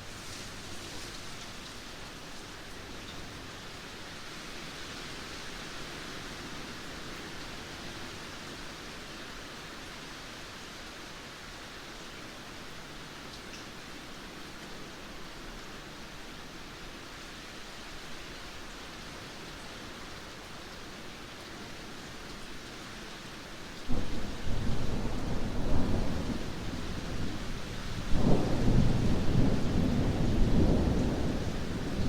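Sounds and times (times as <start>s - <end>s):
heavy rain: 0.0s - 32.0s
thunder clap and rumble: 28.1s - 32.0s.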